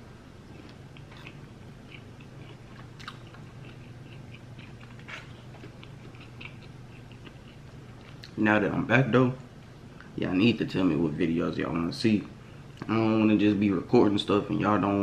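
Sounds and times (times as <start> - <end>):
steady low hum: 0.0 - 15.0
person chewing food: 0.4 - 8.4.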